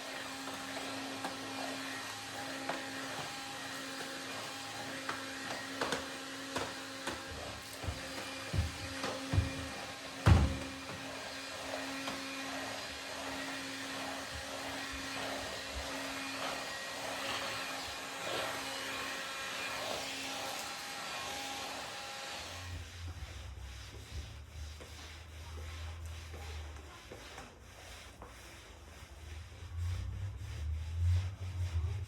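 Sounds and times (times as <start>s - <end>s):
vacuum cleaner running: 0.0s - 22.9s
thump: 7.9s - 10.8s.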